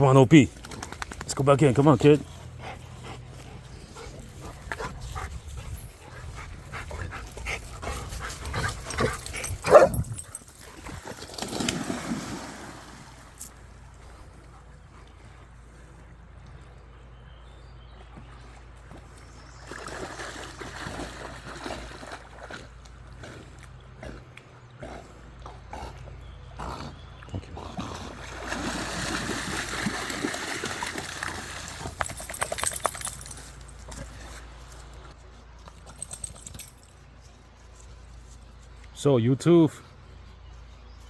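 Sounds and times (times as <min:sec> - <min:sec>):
water splashing from dog swimming: 0:10.7 - 0:13.4, 0:19.6 - 0:22.8, 0:27.8 - 0:33.2.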